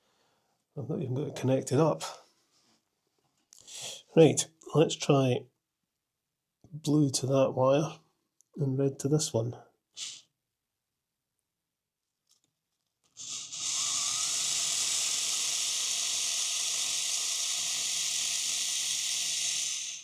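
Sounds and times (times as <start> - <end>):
small electric motor whirring: 13.1 - 20.0.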